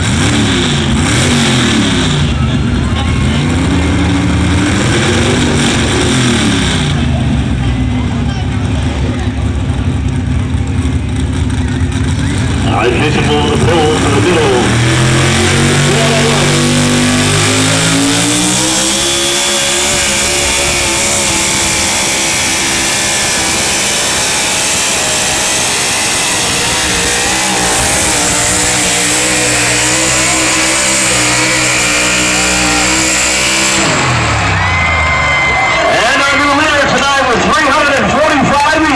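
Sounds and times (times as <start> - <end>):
truck engine revving under load: 0.0 - 38.9.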